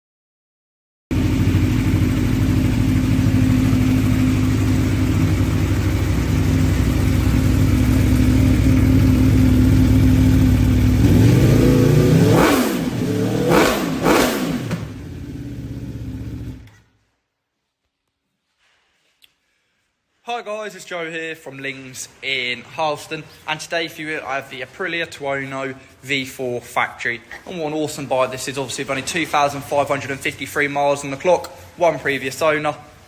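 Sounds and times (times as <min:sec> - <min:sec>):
motorcycle engine idling and revving: 0:01.1 - 0:16.8.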